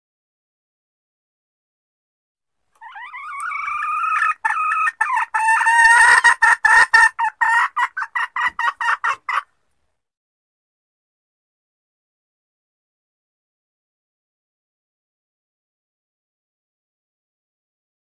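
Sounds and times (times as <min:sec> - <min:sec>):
hen lure call: 0:02.8 - 0:09.4.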